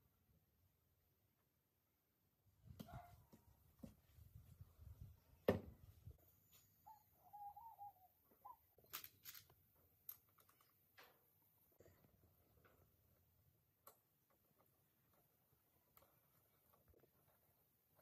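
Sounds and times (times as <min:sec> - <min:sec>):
wavering squeak: 0:06.8 - 0:08.6.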